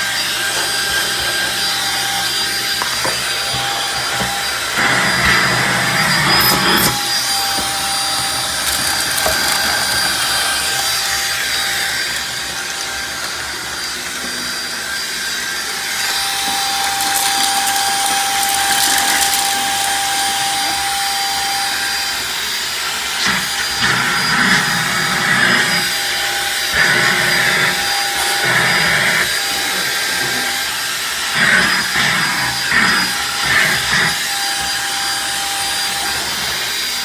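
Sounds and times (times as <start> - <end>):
vacuum cleaner running: 0.0 - 37.0
debris crackling in vacuum: 6.4 - 12.2, 16.0 - 20.8.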